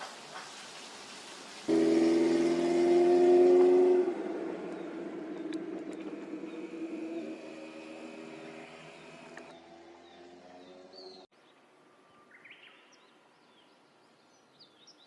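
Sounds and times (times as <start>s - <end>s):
horn sounding loud chord: 1.7s - 5.1s
horn echo: 1.7s - 5.4s.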